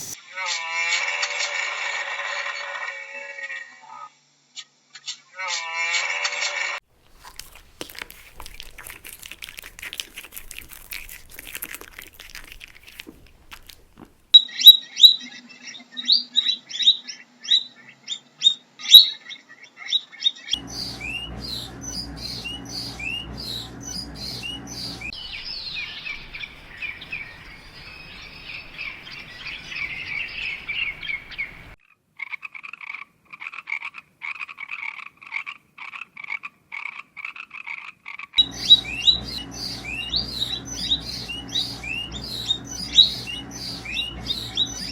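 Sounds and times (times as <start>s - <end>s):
small birds chirping: 7.0s - 14.5s, 20.6s - 31.8s, 38.4s - 44.9s
low steady hum: 20.6s - 31.8s, 38.4s - 44.9s.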